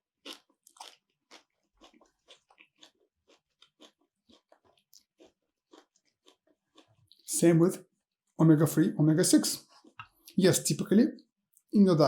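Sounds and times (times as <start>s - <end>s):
person chewing food: 0.0s - 7.3s, 9.6s - 10.4s.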